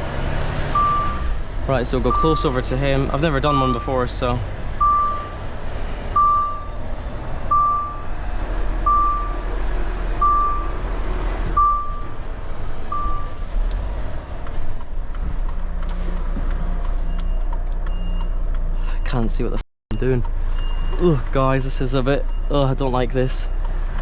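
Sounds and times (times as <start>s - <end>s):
diesel engine running: 0.0s - 19.2s
reversing alarm beeps: 0.8s - 1.3s, 2.1s - 2.4s, 4.8s - 5.4s, 6.2s - 6.8s, 7.5s - 8.1s, 8.8s - 9.4s, 10.2s - 10.8s, 11.6s - 12.2s, 12.9s - 13.4s, 17.1s - 19.2s, 19.9s - 21.0s.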